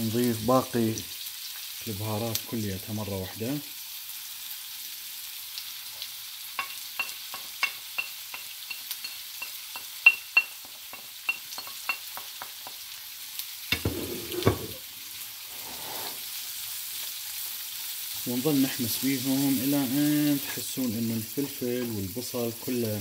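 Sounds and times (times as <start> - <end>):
food sizzling in a pan: 0.0 - 23.0
spatula stirring the pan: 6.6 - 14.8, 15.5 - 23.0
spatula scraping a ceramic plate: 13.8 - 14.8.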